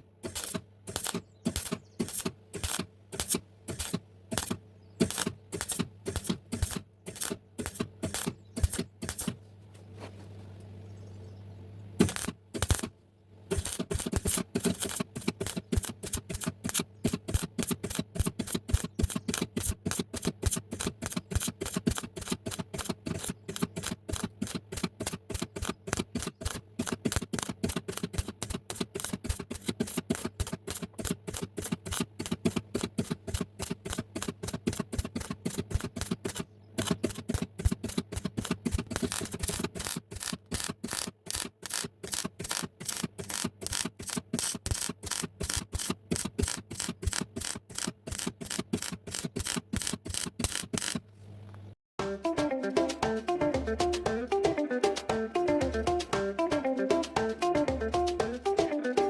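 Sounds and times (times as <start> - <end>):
steady low hum: 0.0 - 51.8
hand rubbing metal: 13.5 - 51.5.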